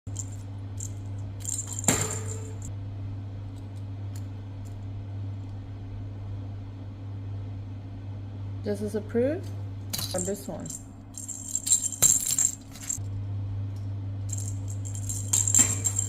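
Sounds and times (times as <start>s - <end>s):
small metal object clinking: 0.1s - 2.7s, 9.9s - 13.0s, 14.3s - 16.0s
steady low hum: 0.1s - 16.0s.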